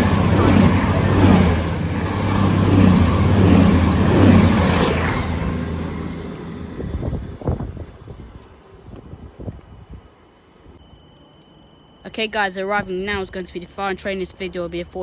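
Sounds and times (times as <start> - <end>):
train wheels and air rushing: 0.0 - 10.2
train engine hum: 0.0 - 10.8.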